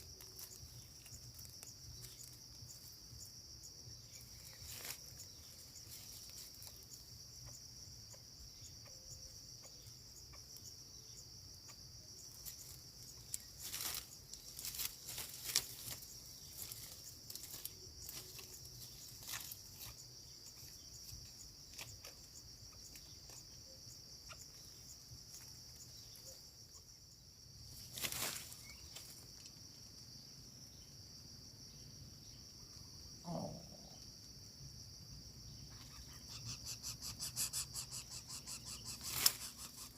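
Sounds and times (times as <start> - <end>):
insects droning: 0.0 - 39.9
rustles and clicks: 12.4 - 20.2, 27.8 - 29.5, 39.0 - 39.9.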